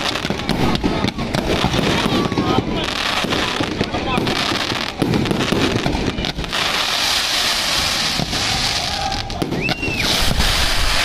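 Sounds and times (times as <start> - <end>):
firework whistle: 0.0 - 11.0
fireworks bangs and crackles: 0.0 - 11.0.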